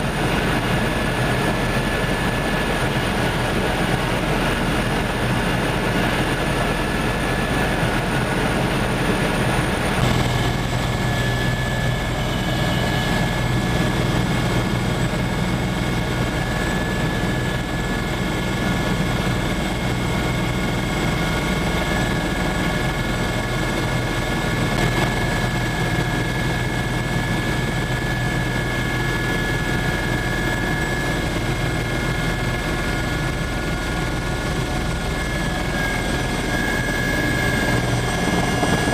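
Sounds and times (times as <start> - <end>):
low hum: 0.0 - 23.3
helicopter turbine and rotor roar: 0.0 - 38.9
high turbine whine: 0.0 - 38.9.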